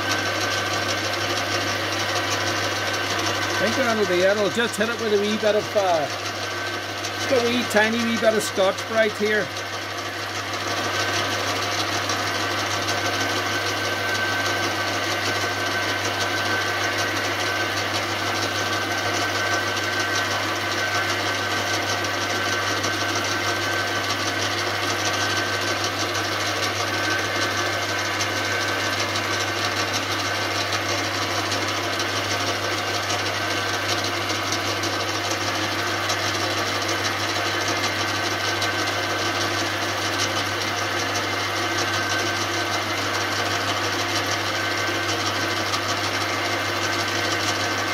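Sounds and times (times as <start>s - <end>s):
lathe motor hum: 0.0s - 47.9s.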